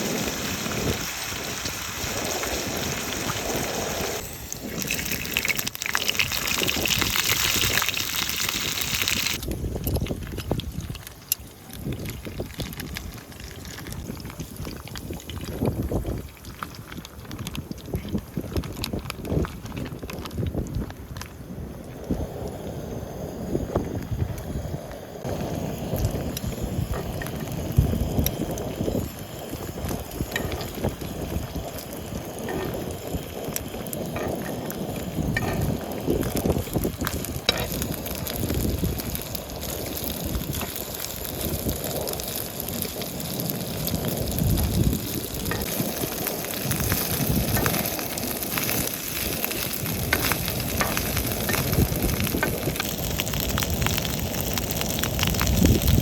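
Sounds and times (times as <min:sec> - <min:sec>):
food sizzling in a pan: 0:00.0 - 0:09.5, 0:25.2 - 0:56.0.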